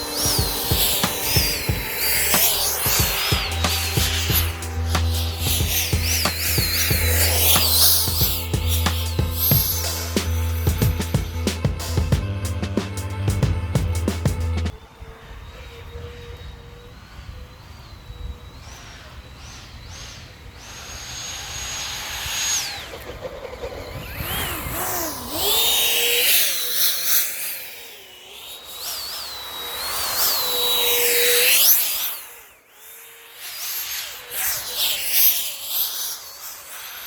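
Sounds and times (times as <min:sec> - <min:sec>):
electric drive motor: 0:00.0 - 0:16.5, 0:19.7 - 0:37.0
electric ducted fan whining: 0:00.0 - 0:17.3, 0:20.4 - 0:26.7.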